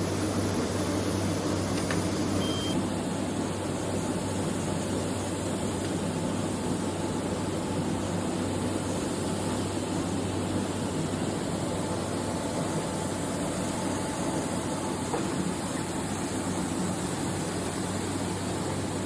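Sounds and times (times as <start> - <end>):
machine humming: 0.0 - 2.8.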